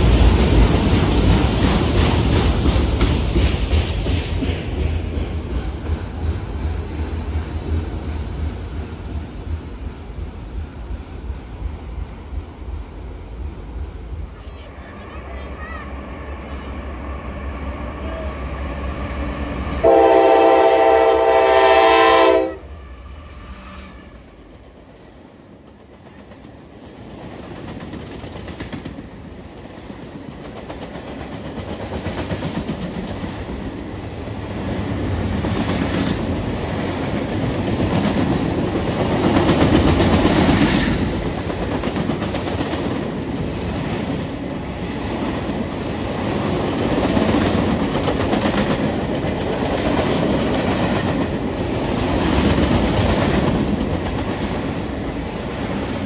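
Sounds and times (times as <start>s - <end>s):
train wheels clattering over rail joints: 0.0s - 8.7s
locomotive air horn blast: 18.3s - 24.3s.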